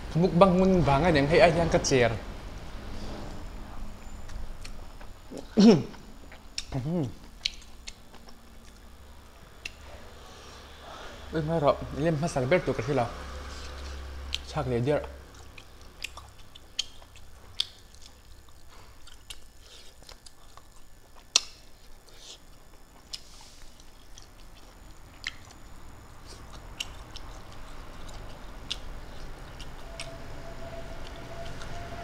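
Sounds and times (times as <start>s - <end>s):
person chewing food: 4.0s - 9.9s, 13.5s - 30.1s.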